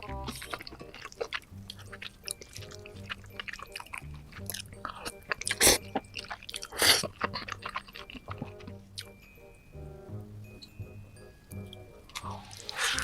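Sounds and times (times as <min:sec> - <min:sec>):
wet chewing and smacking: 0:00.0 - 0:09.3, 0:11.5 - 0:13.0.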